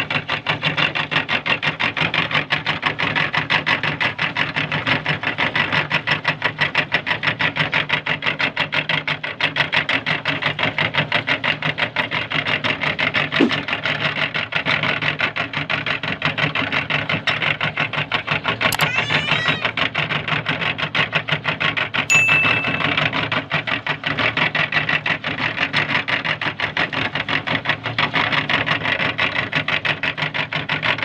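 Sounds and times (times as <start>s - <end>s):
sharp squeak: 18.7s - 19.7s, 22.1s - 23.1s.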